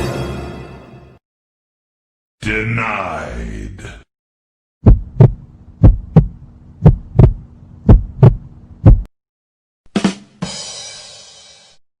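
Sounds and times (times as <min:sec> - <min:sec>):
heartbeat thumps: 0:04.8 - 0:09.1.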